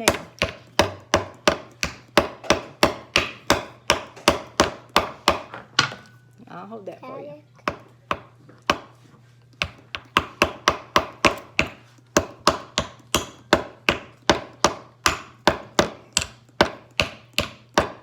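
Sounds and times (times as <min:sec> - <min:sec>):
hammer tapping nail into wood: 0:00.0 - 0:05.6, 0:09.6 - 0:18.0.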